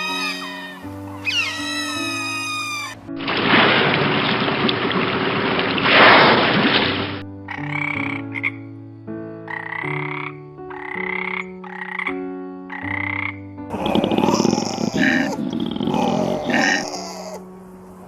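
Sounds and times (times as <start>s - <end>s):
frog croaking: 0.0s - 3.2s, 7.5s - 8.8s, 9.4s - 18.0s.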